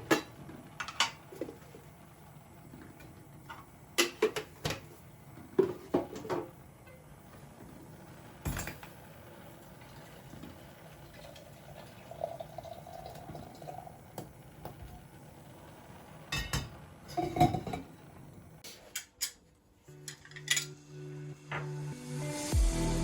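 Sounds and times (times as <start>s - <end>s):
dishes and utensils clinking: 16.3s - 17.9s, 18.7s - 20.8s.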